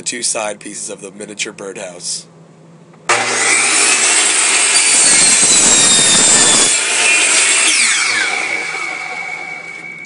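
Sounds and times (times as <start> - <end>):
power saw cutting wood: 3.1 - 10.0.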